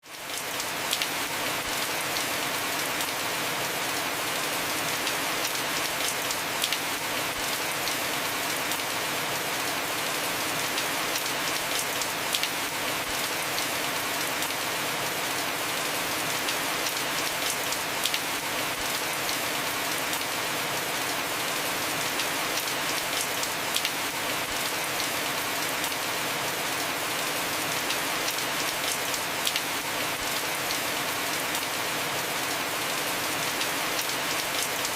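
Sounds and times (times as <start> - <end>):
heavy rain on a roof: 0.0 - 34.9.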